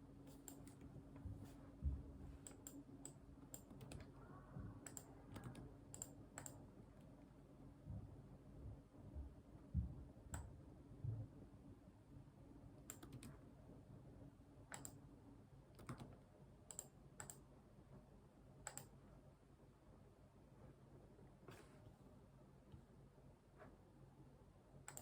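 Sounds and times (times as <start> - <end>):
faint low hum: 0.0 - 25.0
soft low thumps: 1.1 - 2.4, 7.8 - 10.2
keyboard and mouse clicks: 2.4 - 4.1, 4.8 - 6.6, 12.9 - 13.4, 14.7 - 15.0, 15.7 - 17.4, 18.6 - 19.0.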